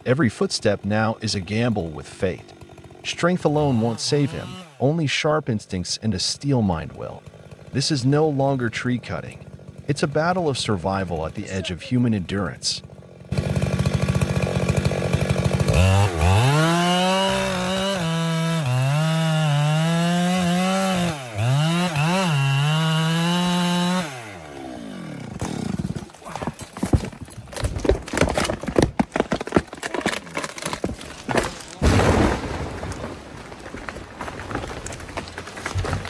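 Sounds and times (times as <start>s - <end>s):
chainsaw cutting: 0.0s - 36.0s
sharp cracks and knocks: 25.3s - 36.0s.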